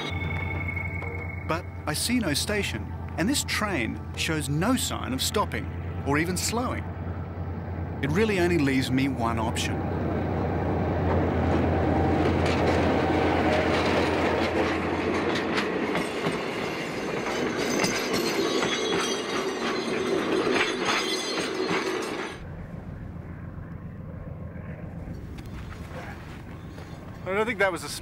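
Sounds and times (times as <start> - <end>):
diesel locomotive engine hum: 0.0 - 28.0
train wheels clattering: 11.0 - 22.4
distant low rumble: 22.4 - 28.0.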